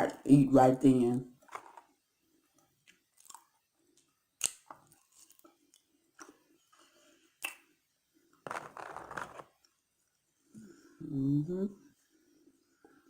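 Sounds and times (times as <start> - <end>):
chewing fries: 2.8 - 7.7
mouth clicks: 7.4 - 7.6.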